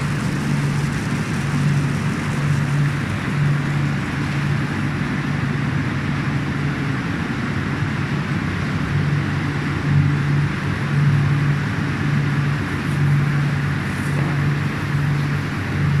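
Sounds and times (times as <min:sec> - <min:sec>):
machine hissing: 0:00.0 - 0:05.0
low machine hum: 0:00.0 - 0:16.0.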